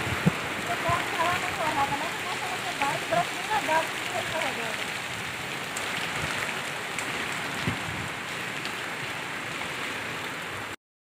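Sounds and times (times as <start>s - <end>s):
rain falling on mud: 0.0s - 10.8s.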